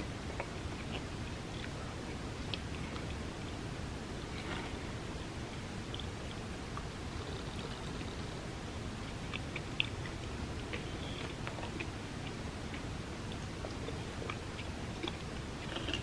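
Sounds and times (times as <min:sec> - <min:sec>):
steady low hiss: 0:00.0 - 0:16.0
wet mouth clicks chewing: 0:00.2 - 0:03.3, 0:05.8 - 0:08.3, 0:09.1 - 0:16.0.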